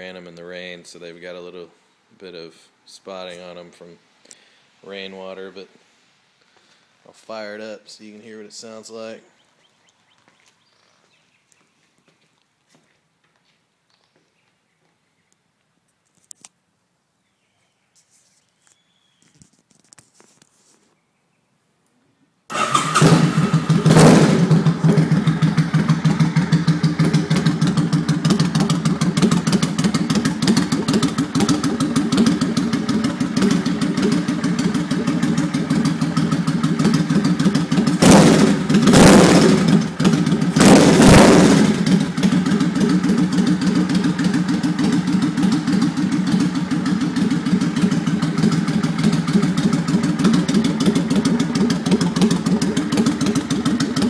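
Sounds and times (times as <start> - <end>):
motorcycle engine idling and revving: 22.5 - 54.0.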